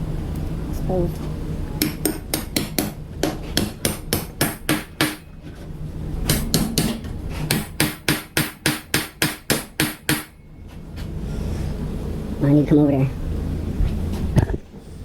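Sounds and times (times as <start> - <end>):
hammer pounding steel bolts: 1.8 - 5.3, 6.2 - 10.4.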